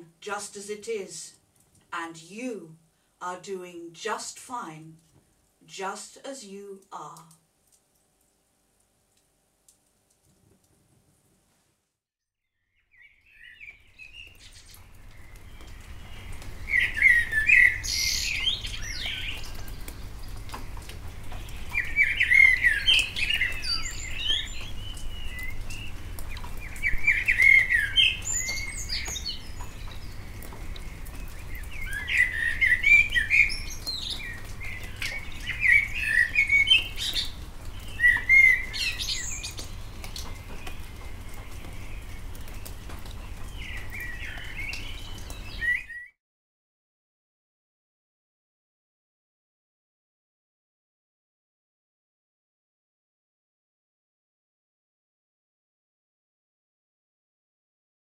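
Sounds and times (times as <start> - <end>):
songbird singing: 12.4 - 46.2.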